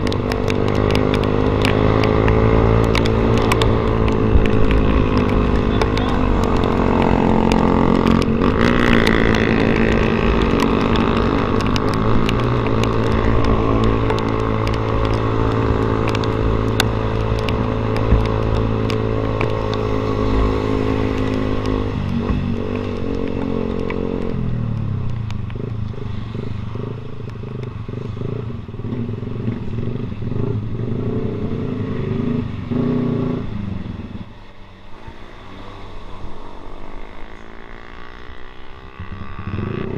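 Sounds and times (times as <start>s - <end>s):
motorcycle engine running: 0.0s - 21.6s.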